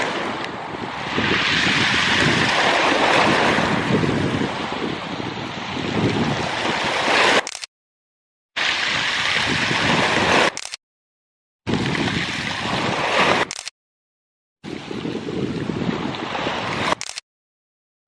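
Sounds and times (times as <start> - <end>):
wind on microphone: 0.0 - 7.3, 8.6 - 10.6, 11.7 - 13.5, 14.6 - 17.0
sea water washing over rocks: 0.0 - 7.5, 8.6 - 10.6, 11.7 - 13.5.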